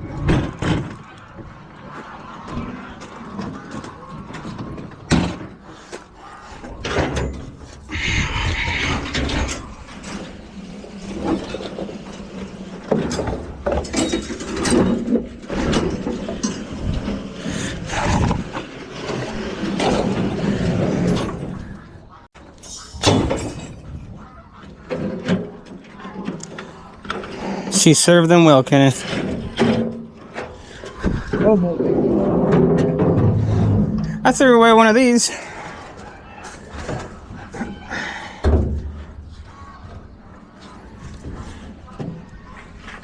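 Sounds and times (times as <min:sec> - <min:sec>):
junk being knocked and scraped: 0:08.9 - 0:21.8, 0:22.4 - 0:27.5, 0:29.0 - 0:34.2.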